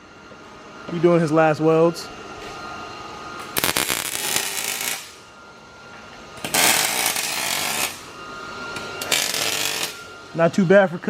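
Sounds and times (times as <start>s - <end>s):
welder crackling: 3.6s - 5.2s, 6.5s - 8.0s, 9.0s - 10.0s.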